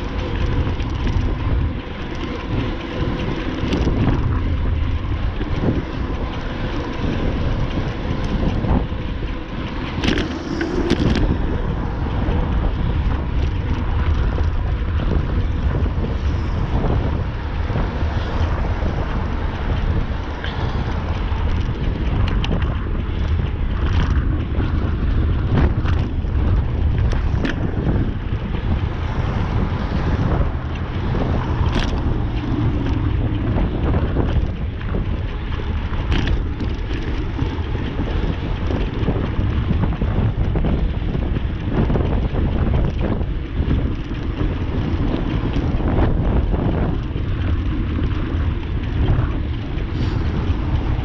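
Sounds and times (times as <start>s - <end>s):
wind buffeting microphone: 0.0s - 51.0s
sharp clicks and knocks: 5.3s - 15.3s, 30.3s - 40.7s.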